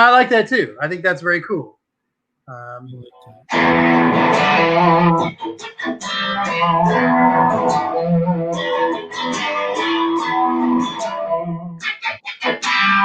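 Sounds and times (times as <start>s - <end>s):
electric guitar blues riff: 3.2s - 13.0s.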